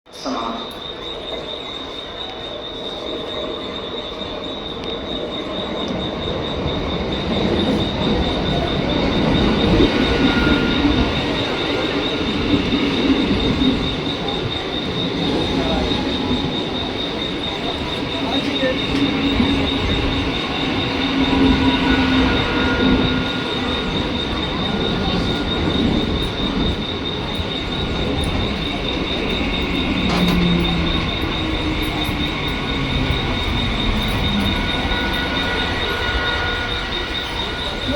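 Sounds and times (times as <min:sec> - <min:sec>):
train rumbling past: 0:00.1 - 0:37.9
wheel squeals: 0:00.2 - 0:37.9.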